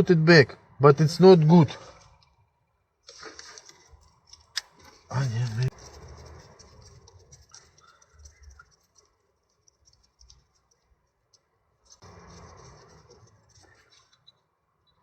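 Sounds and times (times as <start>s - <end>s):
soft rustle: 3.0s - 14.5s
tools scratching and clicking: 3.1s - 14.5s.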